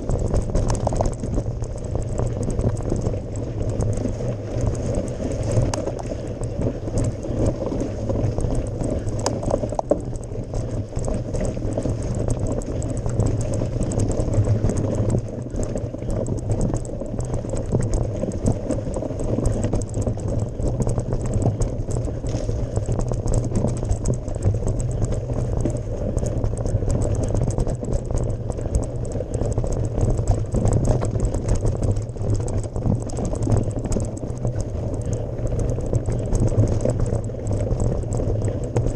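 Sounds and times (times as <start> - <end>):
bike tyres crunching on gravel: 0.0 - 16.3, 22.0 - 27.0.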